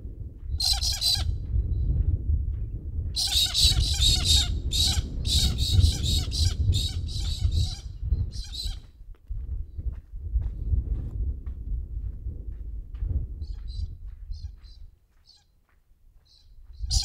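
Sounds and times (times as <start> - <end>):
steady low rumble: 0.0 - 15.0
bird giving harsh raucous calls: 0.6 - 1.3.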